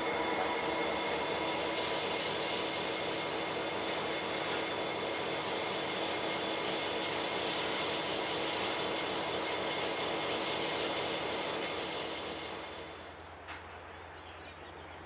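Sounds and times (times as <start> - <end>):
faint whining tones: 0.0 - 4.6
train wheels rumbling on rails: 0.0 - 14.4.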